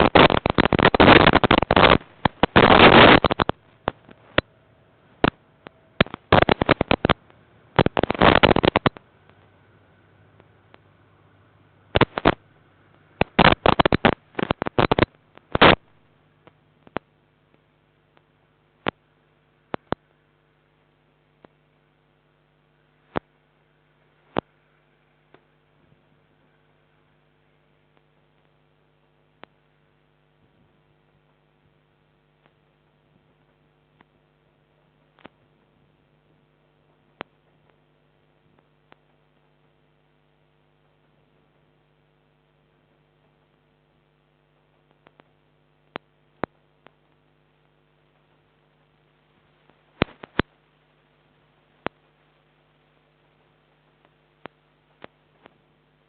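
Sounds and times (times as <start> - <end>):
faint clicks: 0.0 - 4.5, 5.2 - 9.5, 12.0 - 19.0, 19.6 - 20.1, 44.6 - 48.8
low electrical hum: 0.0 - 56.0.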